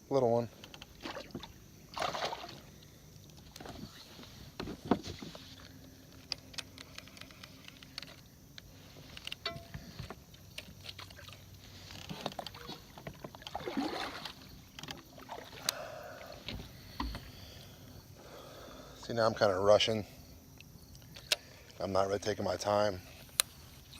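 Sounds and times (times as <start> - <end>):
fishing gear clicking and knocking: 6.0 - 13.6, 14.7 - 15.8.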